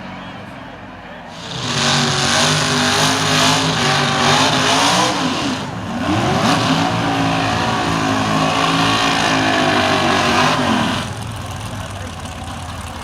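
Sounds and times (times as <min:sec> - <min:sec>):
race car engine at high revs: 0:01.3 - 0:13.0.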